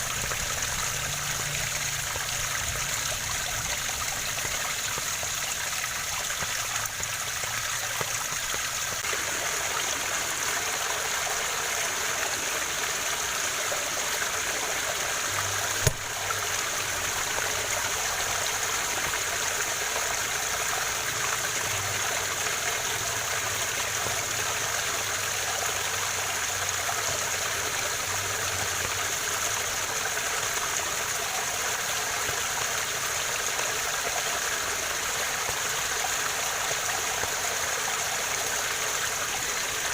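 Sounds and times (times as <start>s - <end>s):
waterfall rushing: 6.9s - 21.0s.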